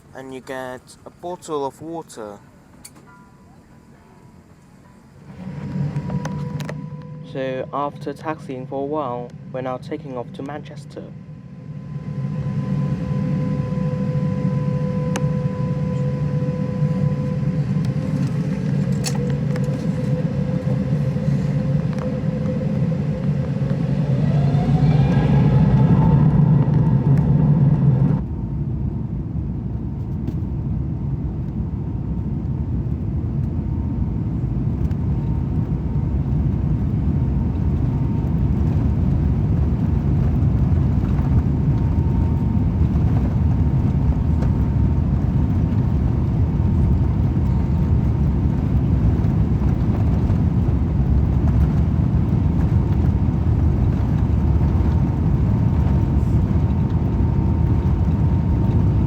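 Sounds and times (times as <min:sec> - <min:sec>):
airplane cabin engine rumble: 0:00.0 - 0:59.0
faint steady tone: 0:02.0 - 0:24.5.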